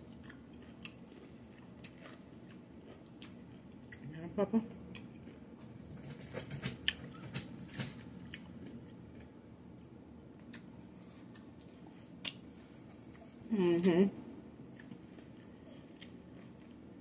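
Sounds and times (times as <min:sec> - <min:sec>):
person chewing crunchy food: 0:00.0 - 0:04.1, 0:14.7 - 0:17.0.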